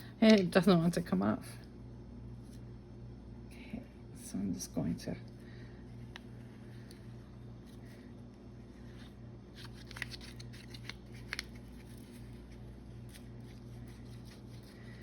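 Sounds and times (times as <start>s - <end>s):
paper rustling: 8.8s - 15.0s.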